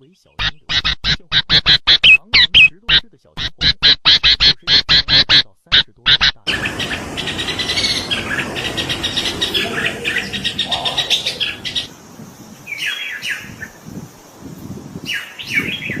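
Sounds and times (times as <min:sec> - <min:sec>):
bird chattering and chirping: 0:06.1 - 0:11.9
downward sliding bird calls: 0:06.5 - 0:11.9.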